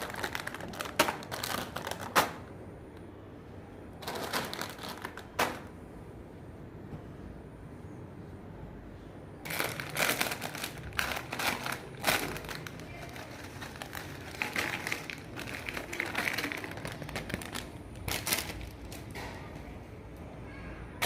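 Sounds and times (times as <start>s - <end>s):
potato chip packet crackling: 0.0s - 2.5s, 4.0s - 5.6s, 9.5s - 19.1s.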